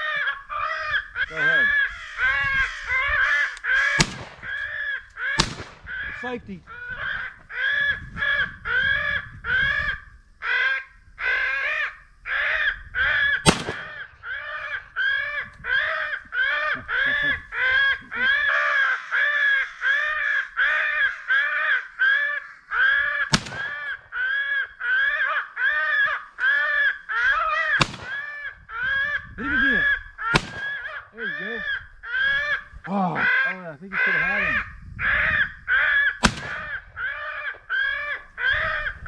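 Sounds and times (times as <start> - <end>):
crows cawing: 0.0 - 39.0
shotgun shots: 3.9 - 4.6, 5.4 - 5.9, 13.4 - 14.2, 23.3 - 24.0, 27.8 - 28.3, 30.3 - 31.0, 36.2 - 36.8.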